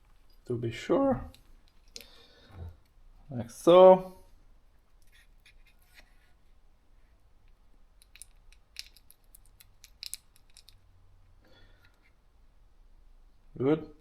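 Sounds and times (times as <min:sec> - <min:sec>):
small metal parts clicking: 0:08.0 - 0:10.9.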